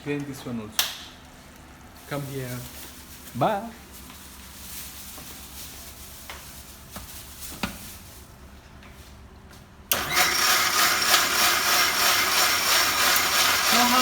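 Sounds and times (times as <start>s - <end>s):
electric mixer grinder grinding: 9.9s - 14.0s.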